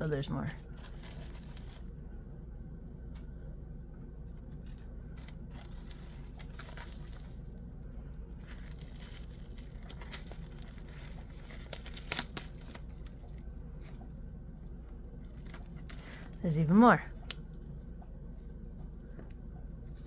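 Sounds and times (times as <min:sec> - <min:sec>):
plastic bags crinkling: 0:00.5 - 0:02.0, 0:04.3 - 0:20.0.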